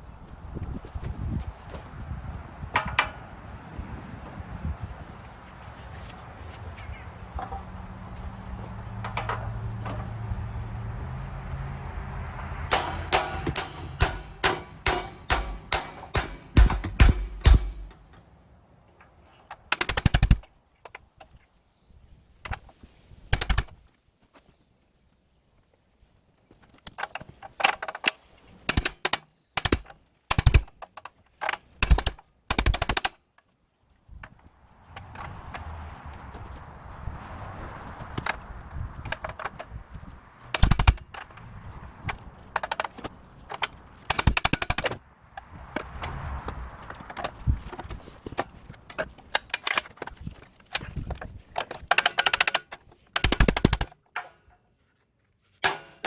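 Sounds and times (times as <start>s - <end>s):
hammering on metal: 12.7s - 18.1s, 55.6s - 56.0s
rapid metal-on-metal strikes: 12.7s - 18.1s, 55.6s - 56.0s.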